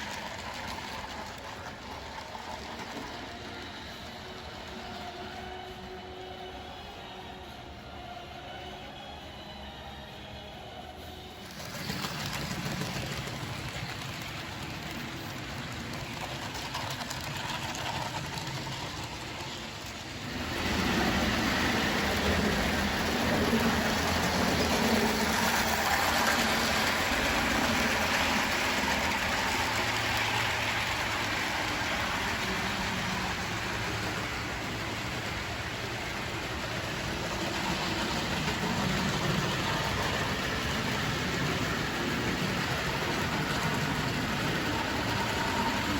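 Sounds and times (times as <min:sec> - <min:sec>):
model train running on rails: 0:00.0 - 0:45.9.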